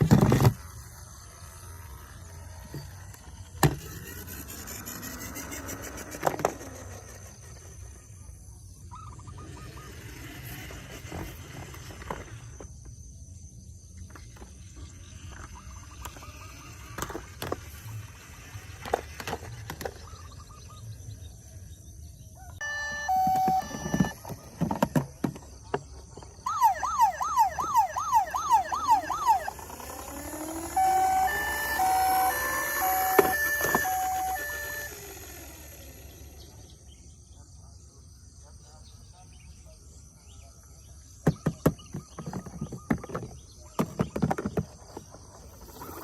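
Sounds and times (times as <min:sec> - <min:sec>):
toy two-tone siren: 0:00.1 - 0:07.3, 0:15.4 - 0:19.9, 0:22.4 - 0:25.4, 0:26.2 - 0:36.6, 0:45.5 - 0:46.0
toy siren wail: 0:22.5 - 0:25.1, 0:26.2 - 0:36.5.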